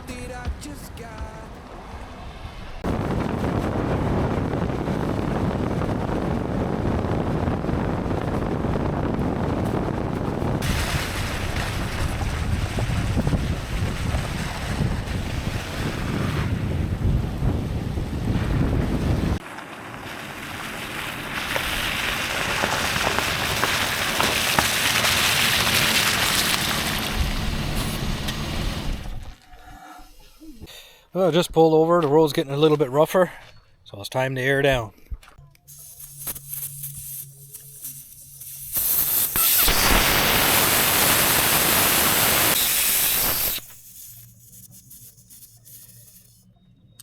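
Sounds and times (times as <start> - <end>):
vehicle road and wind noise: 0.0 - 29.4, 35.8 - 43.7.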